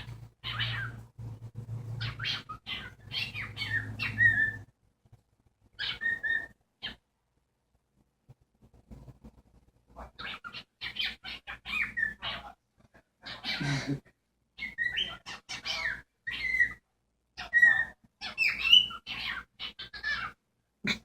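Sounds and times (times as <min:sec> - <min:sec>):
cockatiel chirping and whistling: 0:02.0 - 0:04.7, 0:05.8 - 0:07.0, 0:10.2 - 0:12.3, 0:14.6 - 0:16.8, 0:17.4 - 0:20.4.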